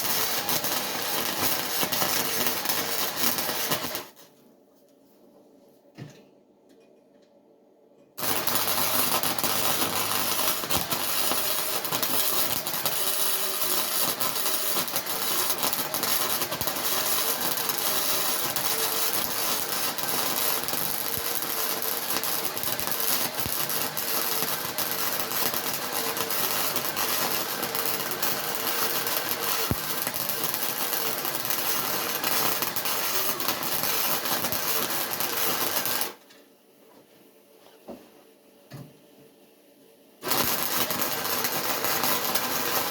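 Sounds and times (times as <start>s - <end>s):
electric arc welding crackle: 0.0s - 4.2s, 8.2s - 36.2s, 40.2s - 42.9s.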